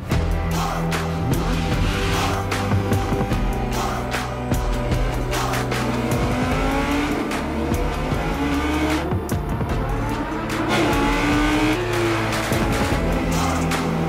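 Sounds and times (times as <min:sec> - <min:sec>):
music playing: 0:00.0 - 0:14.0
sports car engine accelerating: 0:04.8 - 0:14.0.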